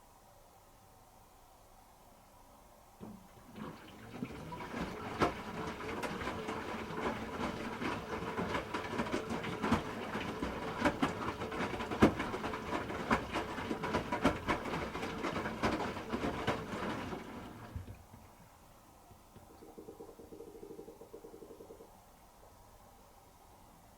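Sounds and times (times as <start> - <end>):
knocks and clacks of tumbling load: 3.0 - 18.3
washing machine motor hum: 3.0 - 21.9.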